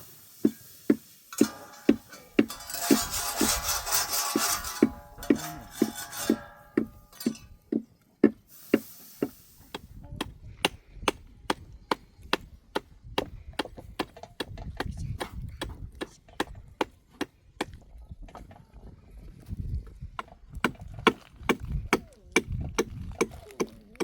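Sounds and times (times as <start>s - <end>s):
rhythmic knocks on wood: 0.5s - 8.5s.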